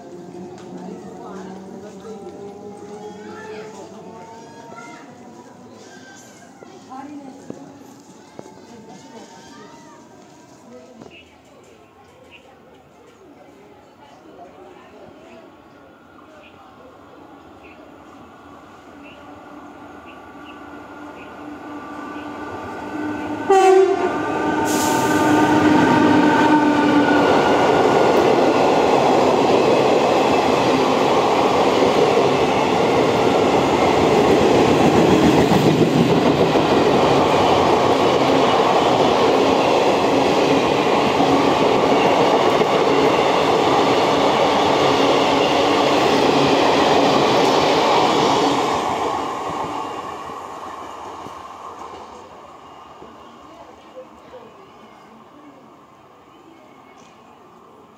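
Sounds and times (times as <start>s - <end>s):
train coaches rumbling on rails: 0.0s - 54.8s
train horn: 23.1s - 27.2s.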